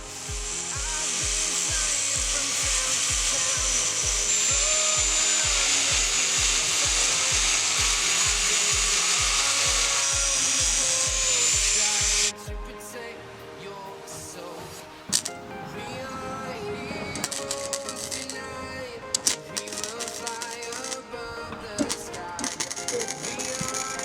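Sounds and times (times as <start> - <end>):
background music with beat: 0.0 - 24.0
power tool cutting steel: 0.2 - 12.3, 19.2 - 24.0.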